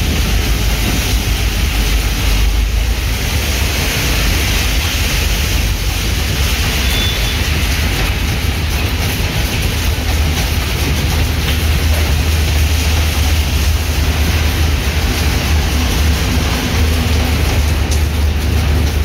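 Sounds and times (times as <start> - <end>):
car tyres hissing on wet road: 0.0 - 19.0
train wheels rumbling on rails: 0.0 - 19.0.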